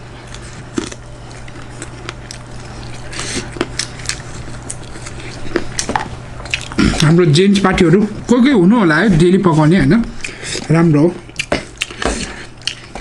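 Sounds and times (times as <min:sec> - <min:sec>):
low electrical hum: 0:00.0 - 0:13.0
wet squishy chewing: 0:00.2 - 0:07.2, 0:11.3 - 0:13.0.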